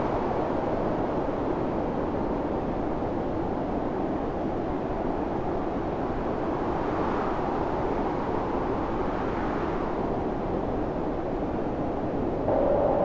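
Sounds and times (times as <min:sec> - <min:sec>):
howling wind: 0:06.8 - 0:13.0.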